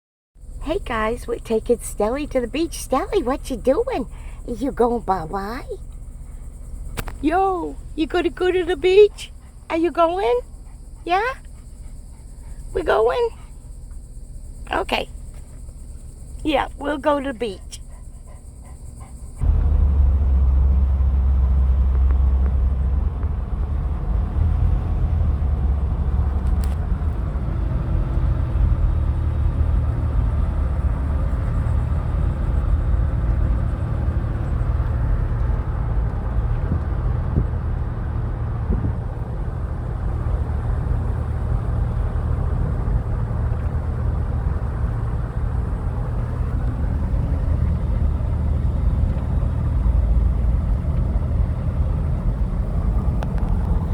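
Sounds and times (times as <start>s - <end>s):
faint hum: 0.4s - 25.4s
car engine and road rumble: 0.4s - 53.9s.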